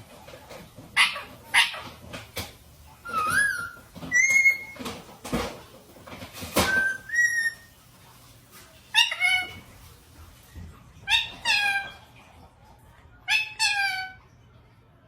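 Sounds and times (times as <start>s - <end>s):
parrot whistling: 3.0s - 4.8s, 6.6s - 7.7s.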